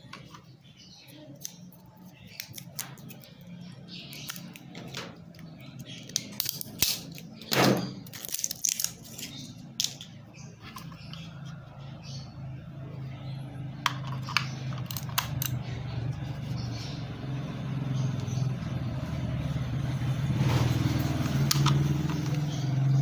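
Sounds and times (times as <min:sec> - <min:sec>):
hands handling small hard objects: 0:08.0 - 0:10.1.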